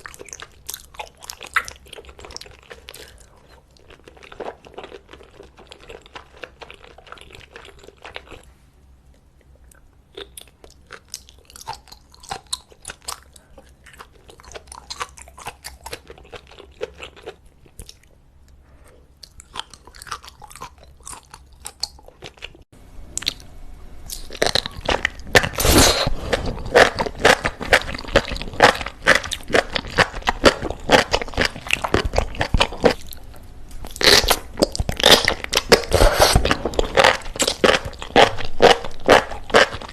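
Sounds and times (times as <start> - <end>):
chewing: 0.0 - 8.5, 9.1 - 23.4, 24.1 - 39.9
loud crunchy chewing: 10.1 - 18.2, 19.2 - 22.6, 24.1 - 39.9.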